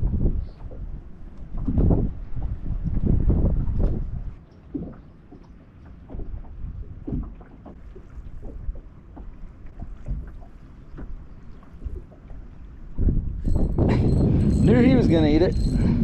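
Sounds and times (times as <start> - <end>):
wind buffeting microphone: 0.0 - 5.0, 11.8 - 16.0
water lapping against boat hull: 0.0 - 16.0.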